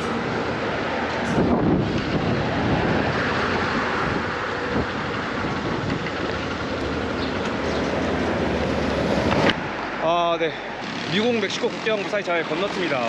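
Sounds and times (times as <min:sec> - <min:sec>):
wind rushing over microphone: 0:00.0 - 0:10.0.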